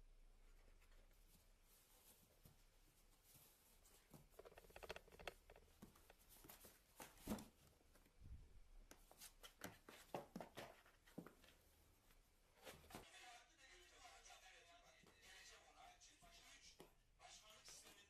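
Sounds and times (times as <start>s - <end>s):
faint clicks and taps: 3.9s - 8.2s.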